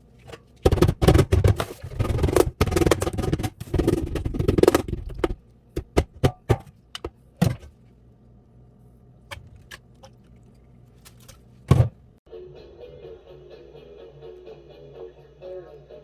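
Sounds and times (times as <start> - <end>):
music with steady tone: 12.3 - 16.0.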